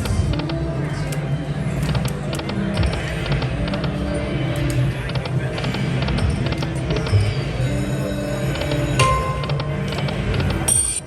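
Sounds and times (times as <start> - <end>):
low din of casino floor: 0.0 - 11.0
slot machine electronic ticks: 8.5 - 11.0.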